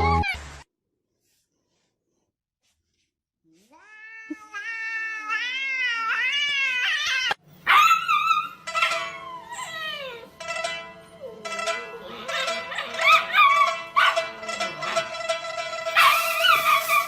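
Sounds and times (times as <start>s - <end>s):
cat meowing: 3.6s - 7.4s.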